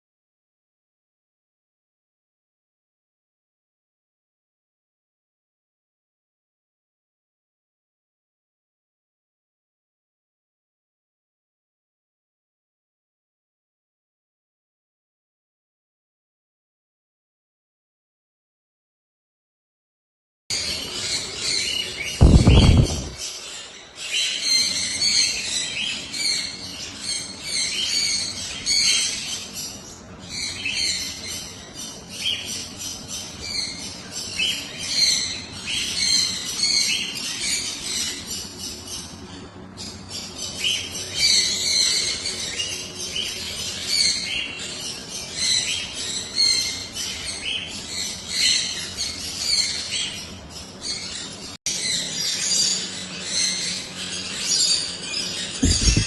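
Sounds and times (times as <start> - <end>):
caged birds chirping and squawking: 20.5 - 56.0
loud low bump: 22.2 - 23.2, 55.6 - 56.0.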